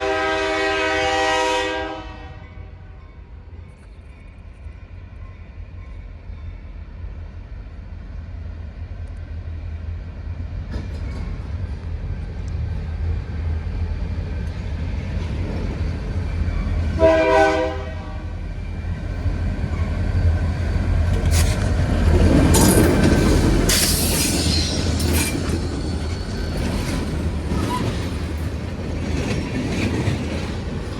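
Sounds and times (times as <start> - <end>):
train horn blasts: 0.0 - 3.0, 17.0 - 18.4
train rumble: 0.0 - 30.9
high squeal: 23.7 - 28.1.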